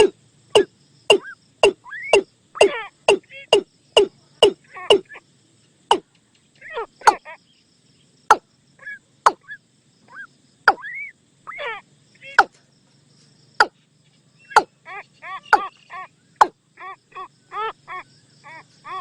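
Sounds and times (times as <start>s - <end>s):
bird calls dropping in pitch: 0.0s - 3.6s, 14.5s - 16.6s
insects buzzing faintly: 0.0s - 19.0s.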